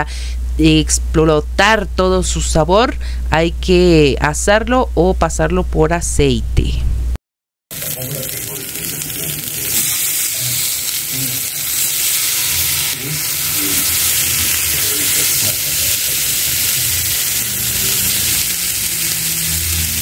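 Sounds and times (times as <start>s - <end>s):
vegetables sizzling in a frying pan: 7.7s - 20.0s.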